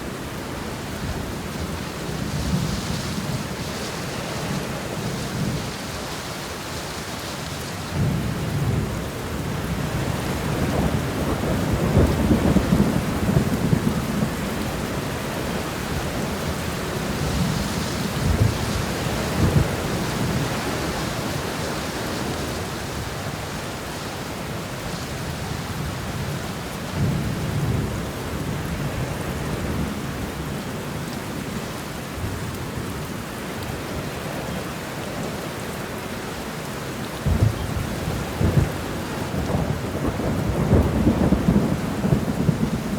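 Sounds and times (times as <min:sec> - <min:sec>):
steady rain: 0:00.0 - 0:42.9
distant thunder rumbling: 0:07.9 - 0:23.4, 0:37.2 - 0:42.9.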